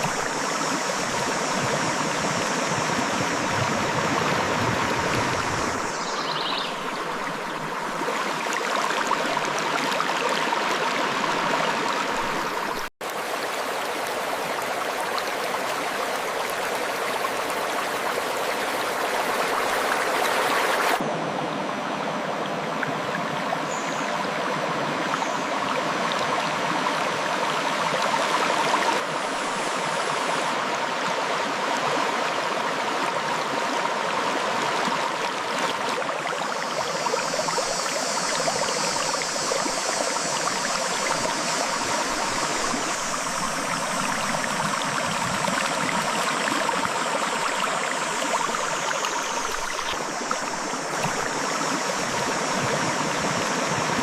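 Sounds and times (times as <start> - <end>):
high hiss: 0.0 - 7.6, 36.4 - 54.0
river water rushing over rocks: 24.3 - 54.0.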